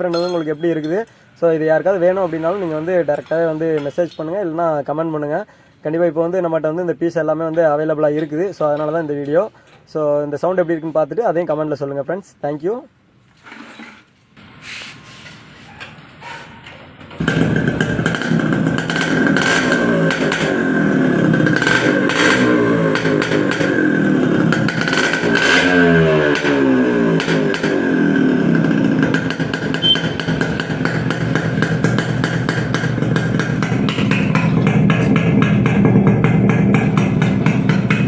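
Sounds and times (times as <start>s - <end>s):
two-stroke engine revving: 17.2s - 38.0s.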